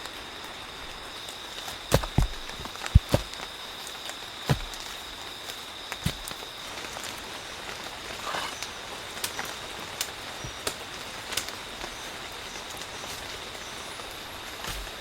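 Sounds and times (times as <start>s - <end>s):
light ticks and snaps: 9.2s - 11.6s.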